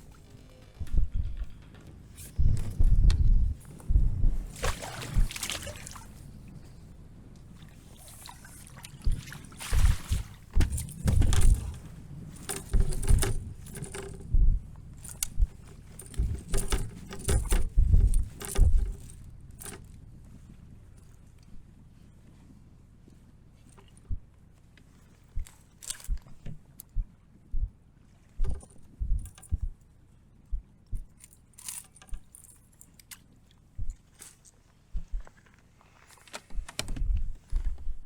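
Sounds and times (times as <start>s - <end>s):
faint water sounds: 3.7s - 13.9s
knocks and thumps on kayak: 9.1s - 11.9s.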